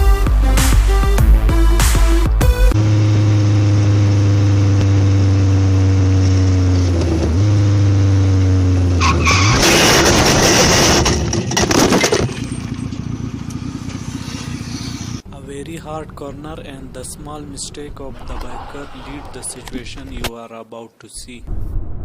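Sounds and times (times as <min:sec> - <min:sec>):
motorcycle engine running: 0:02.4 - 0:09.0, 0:12.4 - 0:15.2
skidding and crash: 0:09.0 - 0:15.2, 0:17.7 - 0:20.3.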